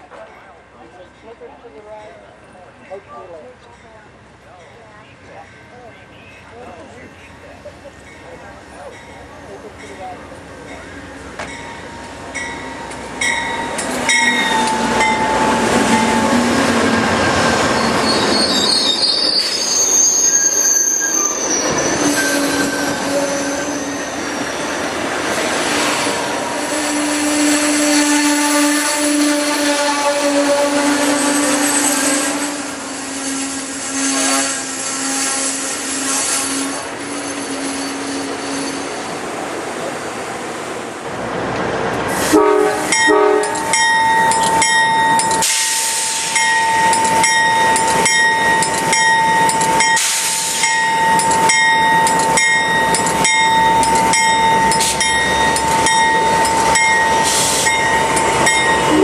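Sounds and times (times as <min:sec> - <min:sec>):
train wheels squealing on rail: 0:10.7 - 0:39.4, 0:42.1 - 0:59.0
train horn blasts: 0:21.9 - 0:24.0, 0:26.5 - 0:38.8, 0:42.2 - 0:43.8
steady high ringing tone: 0:43.0 - 0:59.0.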